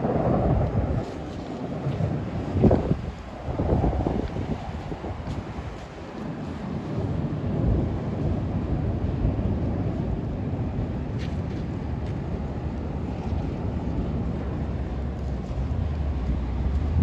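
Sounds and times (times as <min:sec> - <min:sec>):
storm wind buffeting microphone: 0:00.0 - 0:17.0.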